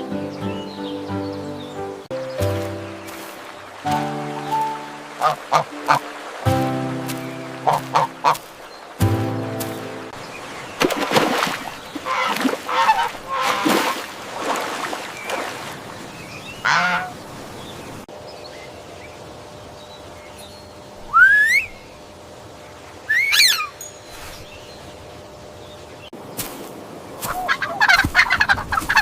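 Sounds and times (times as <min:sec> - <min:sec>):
geese honking: 0:02.4 - 0:10.2, 0:11.9 - 0:14.0, 0:16.6 - 0:17.2, 0:27.3 - 0:29.0.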